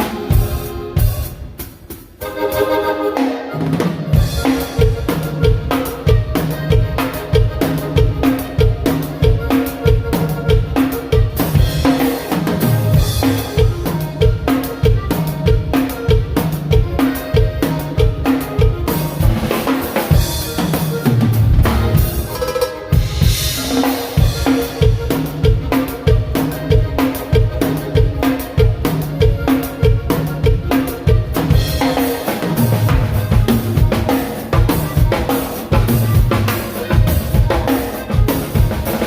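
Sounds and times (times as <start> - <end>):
drum kit groove: 0.0 - 39.0.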